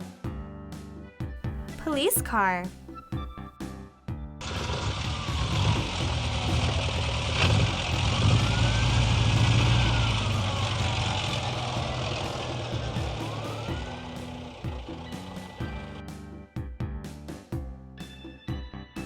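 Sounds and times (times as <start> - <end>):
siren wailing: 4.4 - 15.8
car engine running: 4.4 - 16.0.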